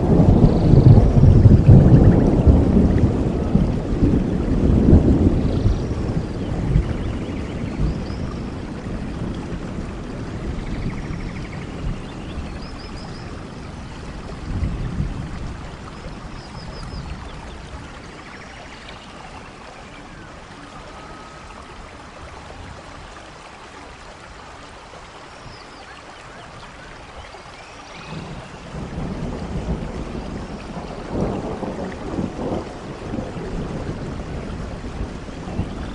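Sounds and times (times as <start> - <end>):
thunder rumbling: 0.0 - 23.2, 28.0 - 35.9
steady rain: 0.0 - 35.9
birds chirping: 25.1 - 29.4.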